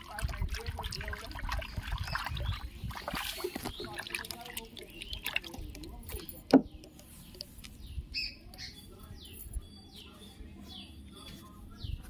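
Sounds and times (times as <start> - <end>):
faint trickling water: 0.0 - 7.7
bird chirping: 1.6 - 12.0.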